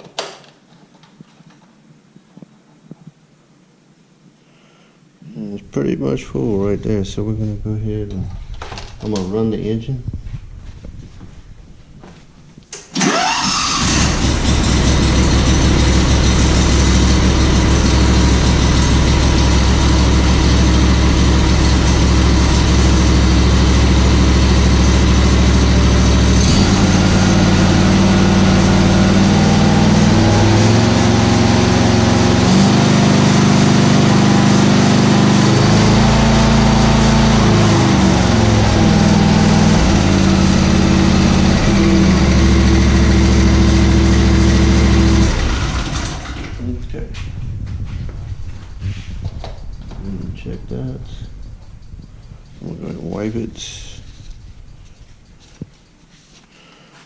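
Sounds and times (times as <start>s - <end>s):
mower engine cranking: 12.7s - 29.2s, 29.8s - 46.6s
mower engine running: 13.0s - 46.6s.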